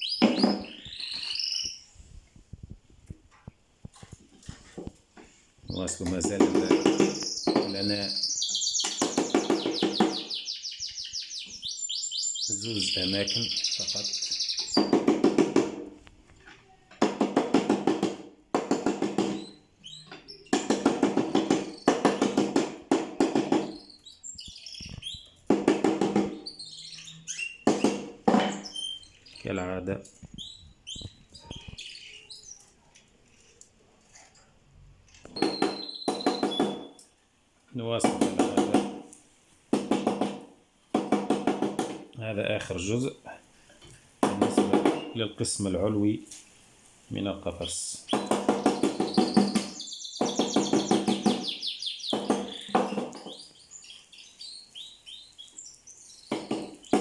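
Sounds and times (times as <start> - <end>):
bird twittering: 0.0 - 1.9, 5.7 - 15.4, 19.1 - 22.4, 23.5 - 32.7, 35.3 - 37.1, 47.6 - 57.0
small songbirds chirping: 0.0 - 2.8, 4.0 - 15.7, 18.9 - 22.4, 23.1 - 33.6, 35.3 - 37.2, 47.1 - 57.0.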